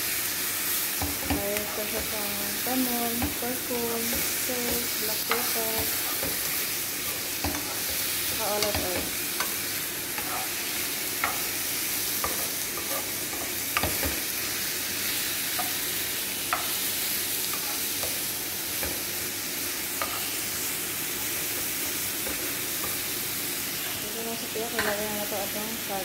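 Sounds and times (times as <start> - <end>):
shrimp sizzling in a frying pan: 0.0 - 26.0
utensil tapping pan: 3.0 - 9.6, 13.4 - 14.2.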